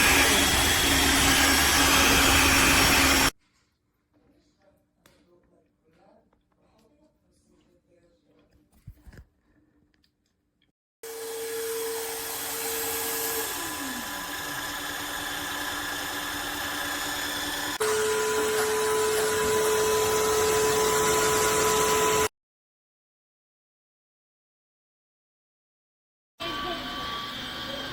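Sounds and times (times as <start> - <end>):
vacuum mop motor whine: 0.0 - 3.3, 11.0 - 22.3, 26.4 - 27.9.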